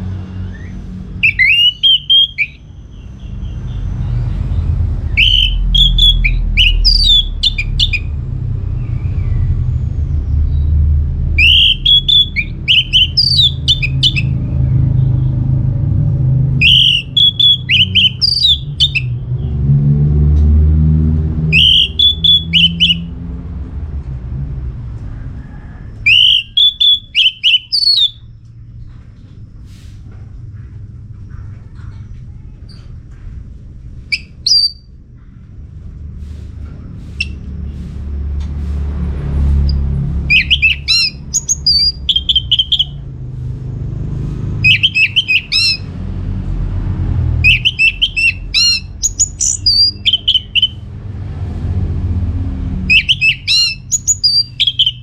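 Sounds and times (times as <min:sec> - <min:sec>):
low rumble: 0:00.0 - 0:26.1
thrush singing whistled phrases: 0:01.2 - 0:02.6, 0:05.1 - 0:08.1, 0:11.4 - 0:14.3, 0:16.6 - 0:19.1, 0:21.5 - 0:23.1, 0:26.1 - 0:28.2, 0:34.1 - 0:34.9, 0:39.7 - 0:43.0, 0:44.6 - 0:45.9, 0:47.4 - 0:50.8, 0:52.9 - 0:55.0.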